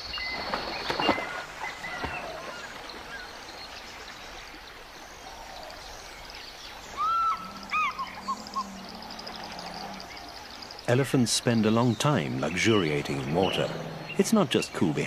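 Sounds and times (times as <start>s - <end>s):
elephants splashing in water: 0.0s - 4.9s.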